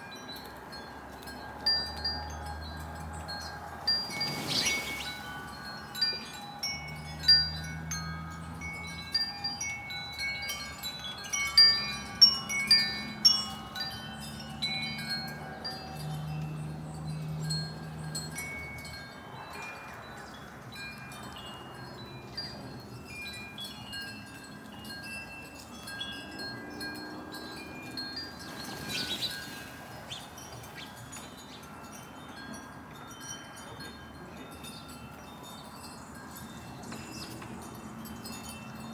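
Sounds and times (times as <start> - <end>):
wind chimes ringing: 0.0 - 38.9.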